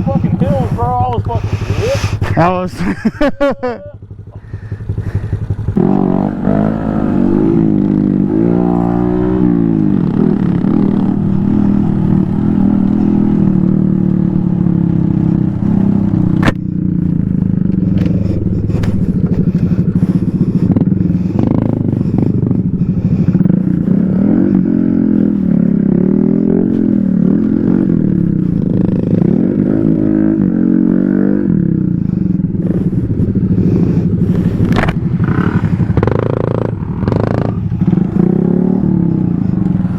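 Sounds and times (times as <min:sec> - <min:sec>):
off-road motorcycle engine revving: 0:00.0 - 0:39.9
steady rattling: 0:08.9 - 0:25.6.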